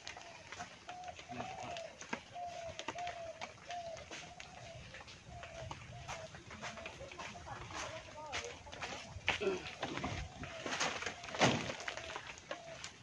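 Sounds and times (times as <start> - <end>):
bird hooting: 0.0 - 6.4.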